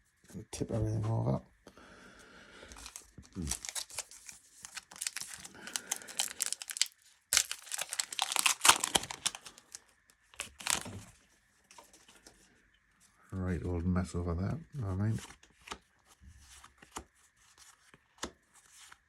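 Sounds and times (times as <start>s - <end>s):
card wrappers crinkling: 2.7s - 11.2s.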